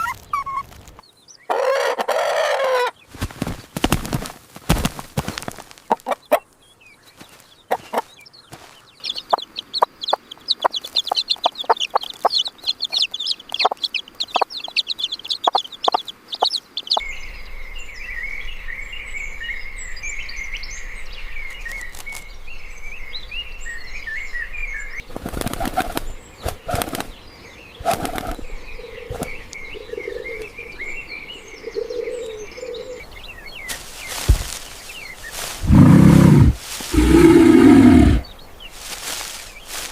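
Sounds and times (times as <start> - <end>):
birds chirping: 0.0 - 39.9
wings flapping and tapping: 3.1 - 6.2, 25.0 - 27.2, 27.8 - 28.5, 29.1 - 29.4, 33.7 - 35.6.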